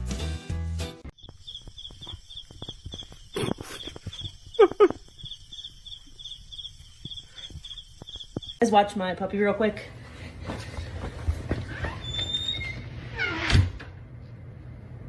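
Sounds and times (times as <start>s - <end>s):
pulsing high chirping: 1.1s - 8.7s.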